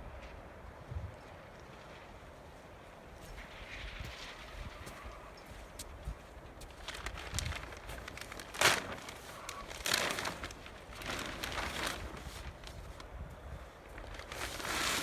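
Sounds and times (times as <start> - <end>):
plastic sheeting crinkling: 3.3 - 15.0.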